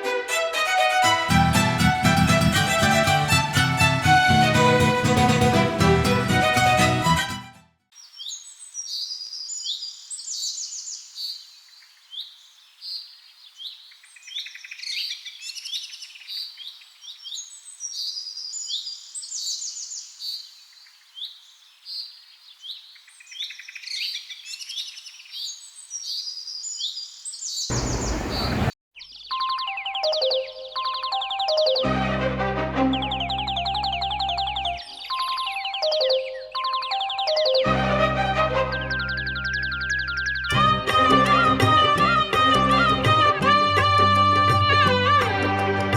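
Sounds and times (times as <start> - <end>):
small birds chirping: 8.0 - 31.8.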